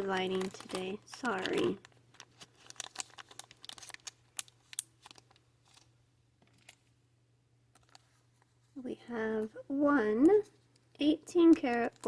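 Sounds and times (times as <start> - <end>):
plastic bags clicking and crinkling: 0.0 - 6.8, 11.5 - 12.0.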